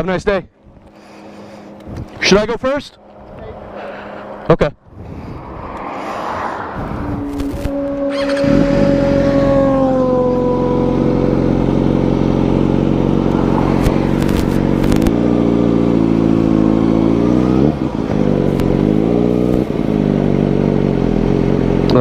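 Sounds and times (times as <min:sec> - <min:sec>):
motorcycle engine revving: 0:05.3 - 0:22.0.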